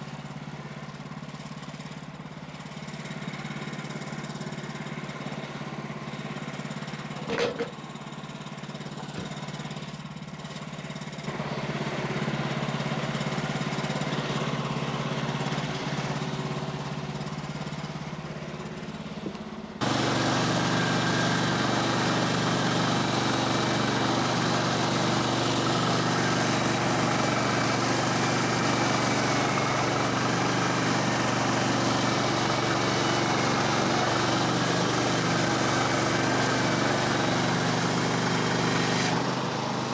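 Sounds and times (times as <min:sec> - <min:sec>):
sawmill gas engine running: 0:00.0 - 0:39.9.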